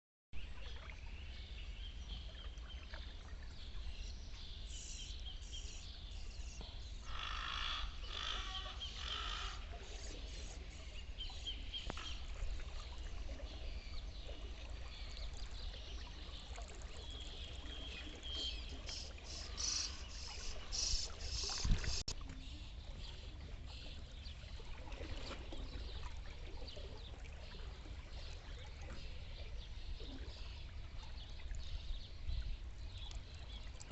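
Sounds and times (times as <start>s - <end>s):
low rumble of wind: 0.4s - 9.8s, 10.7s - 33.9s
birds calling in quick notes: 18.3s - 22.1s.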